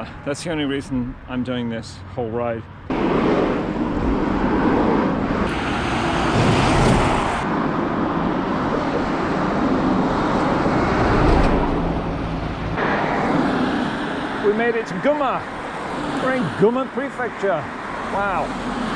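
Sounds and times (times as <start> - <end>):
road traffic noise: 0.0 - 18.9
wind rumble on microphone: 2.9 - 14.5.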